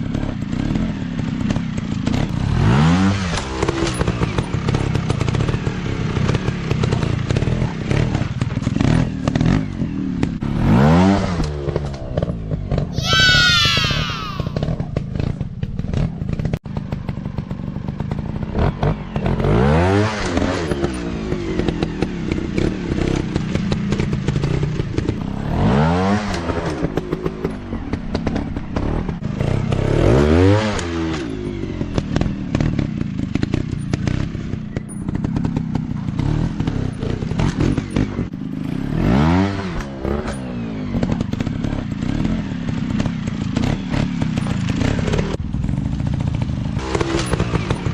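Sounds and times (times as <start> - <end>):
dirt bike engine revving: 35.3 - 45.4, 46.1 - 47.9.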